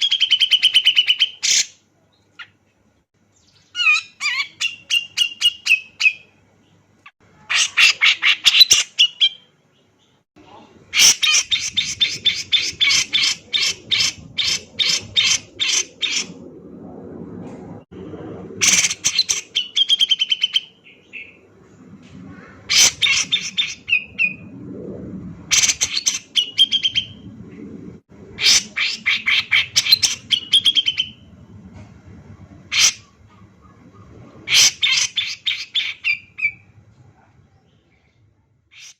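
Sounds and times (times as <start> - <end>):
faint low hum: 9.2 - 38.8.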